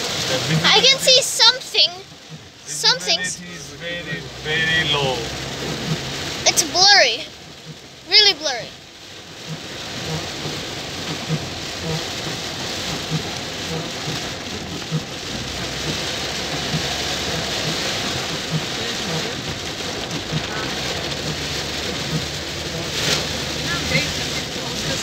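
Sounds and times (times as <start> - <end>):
heavy rain on car roof: 0.0 - 25.0.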